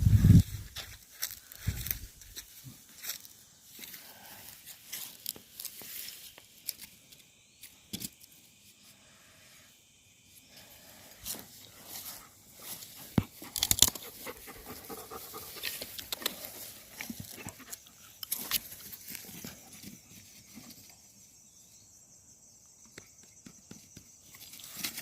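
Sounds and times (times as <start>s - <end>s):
footsteps on dry leaves and twigs: 0.0s - 6.9s, 11.3s - 19.8s.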